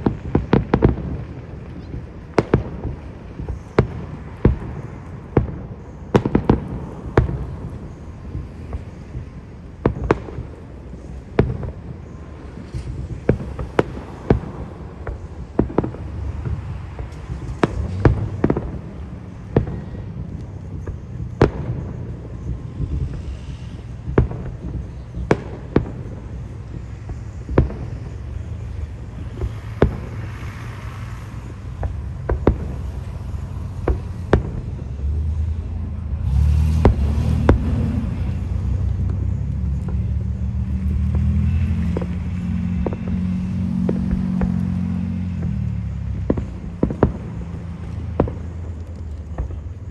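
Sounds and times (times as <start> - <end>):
steady low rumble: 0.0 - 49.9.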